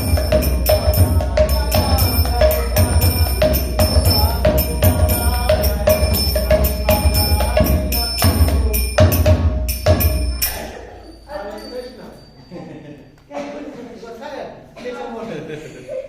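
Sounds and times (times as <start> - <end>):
hand cymbals clashing: 0.0 - 12.8.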